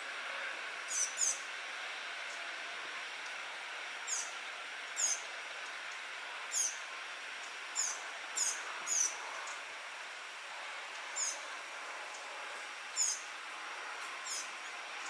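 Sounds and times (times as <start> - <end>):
birds chirping: 13.0 - 13.2.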